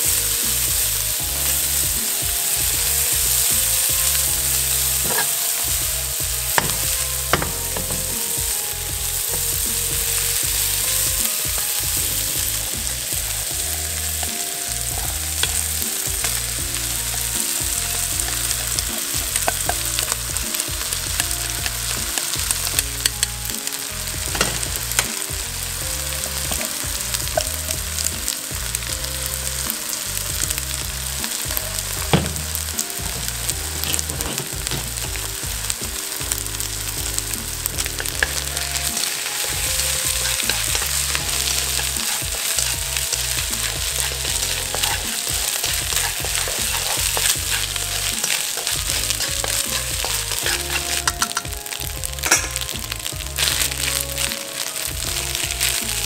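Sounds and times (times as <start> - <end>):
spatula knocking and scraping a pan: 0.0 - 29.0, 29.9 - 56.0
rice sizzling in a wok: 0.0 - 56.0.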